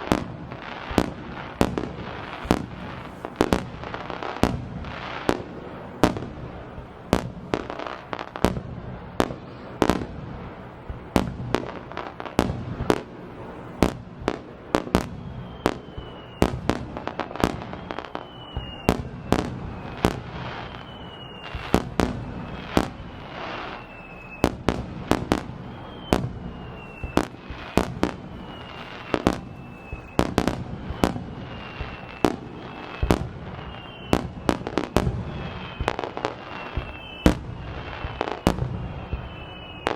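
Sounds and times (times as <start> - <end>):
falling firework whistles: 0.0 - 39.9.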